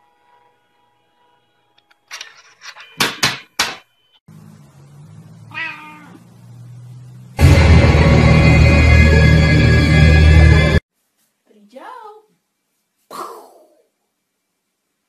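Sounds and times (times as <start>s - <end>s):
low hum: 4.3s - 10.8s
cat meowing: 5.5s - 6.3s
loud music: 7.4s - 10.8s.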